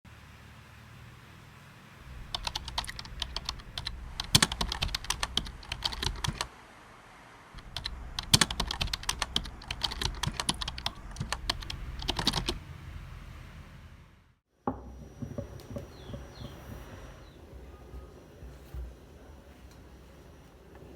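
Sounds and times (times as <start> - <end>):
low steady background noise: 0.1 - 20.9
computer keyboard typing: 2.2 - 6.5, 7.6 - 12.6.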